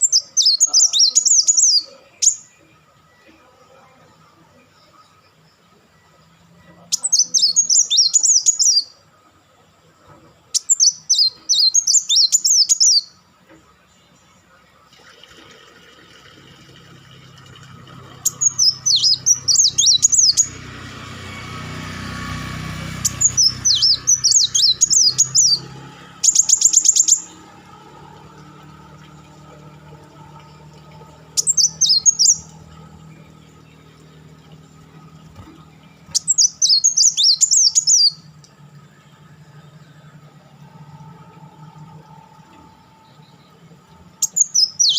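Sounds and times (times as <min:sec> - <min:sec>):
sunbird high twittering: 0:00.0 - 0:03.3, 0:04.7 - 0:09.0, 0:10.5 - 0:13.2, 0:18.1 - 0:44.9
low hum: 0:16.0 - 0:44.9.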